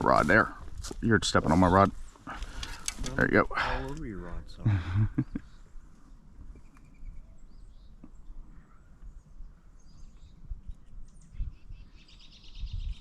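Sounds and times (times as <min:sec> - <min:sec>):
faint bird chirps: 0:06.5 - 0:13.0.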